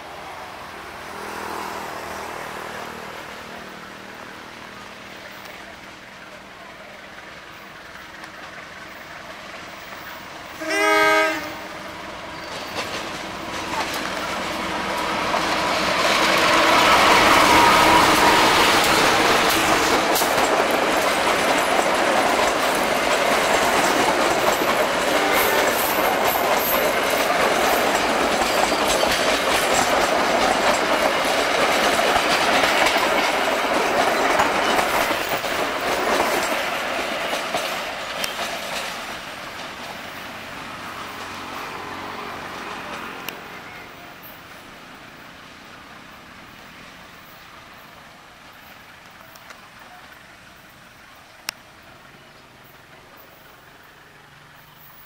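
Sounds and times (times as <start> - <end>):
diesel locomotive engine: 0.0 - 55.0
coach wheels clattering over rail joints: 1.0 - 49.4
locomotive horn blast: 10.5 - 11.8, 16.6 - 19.1, 25.1 - 26.0.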